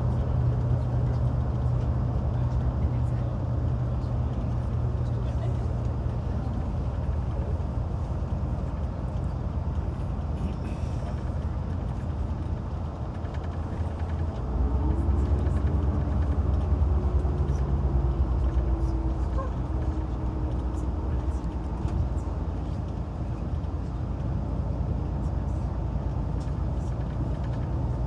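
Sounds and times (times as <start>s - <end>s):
coach engine: 0.0s - 28.0s
road rumble: 0.0s - 28.0s.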